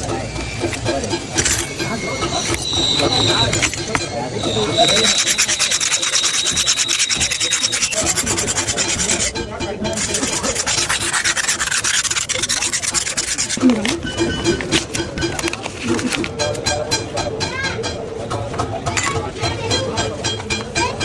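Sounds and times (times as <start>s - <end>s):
rasping sanding strokes: 0.4s - 14.2s.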